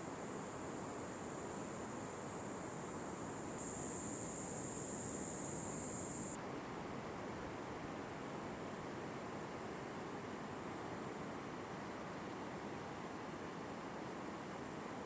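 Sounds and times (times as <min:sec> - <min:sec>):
steady hiss: 0:00.0 - 0:06.4
high thin buzz: 0:02.7 - 0:06.4.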